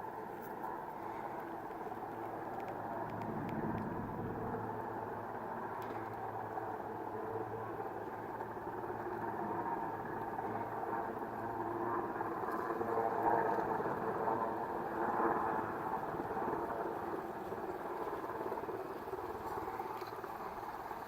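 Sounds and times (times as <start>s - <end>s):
helicopter flying overhead: 0.0s - 21.0s.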